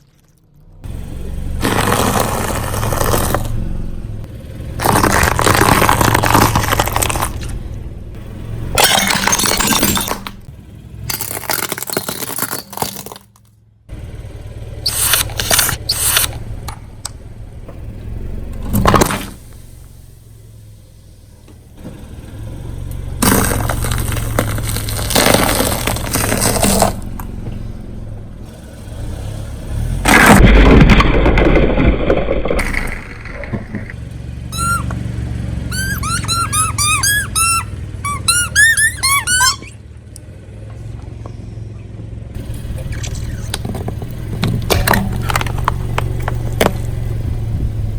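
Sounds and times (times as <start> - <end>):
car engine running: 0.5 - 47.9
tyre crushing brittle objects: 1.6 - 3.5, 4.8 - 7.6, 11.1 - 13.5, 23.2 - 27.1.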